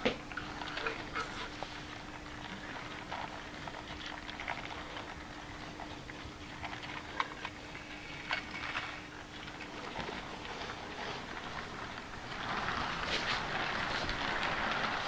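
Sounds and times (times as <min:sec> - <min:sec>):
low electric hum: 0:00.0 - 0:15.0
model train wheels clicking on track: 0:09.7 - 0:15.0.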